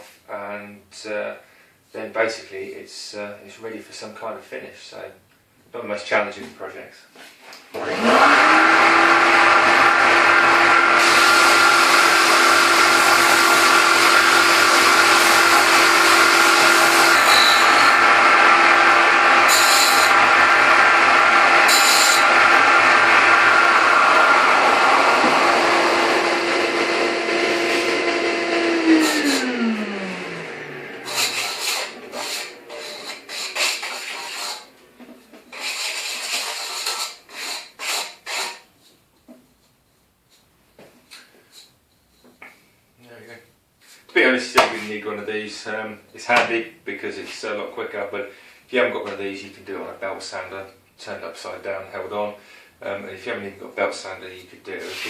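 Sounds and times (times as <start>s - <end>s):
electric bench sander running: 7.8s - 34.7s
wood sanding: 8.0s - 34.8s, 35.5s - 38.7s, 54.8s - 55.0s.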